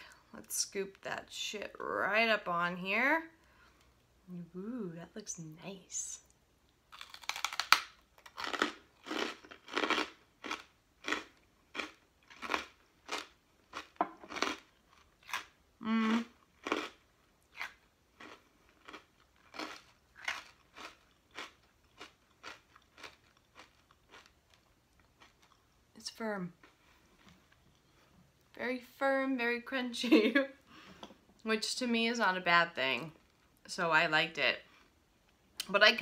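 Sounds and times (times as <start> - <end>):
crunchy chewing: 6.9 - 15.6, 16.2 - 25.8
person humming: 15.8 - 16.3.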